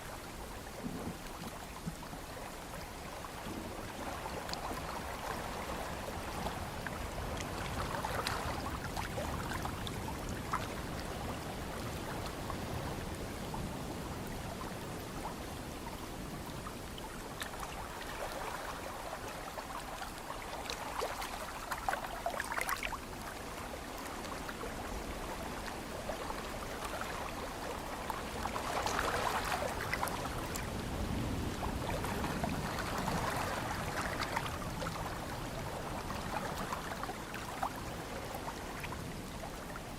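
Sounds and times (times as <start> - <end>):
low wind rumble: 24.6 - 39.9.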